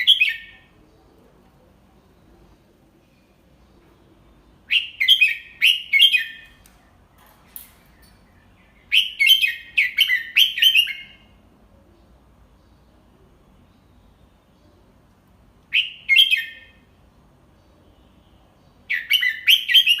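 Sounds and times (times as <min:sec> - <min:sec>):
bulbul singing whistled notes: 0:18.9 - 0:20.0.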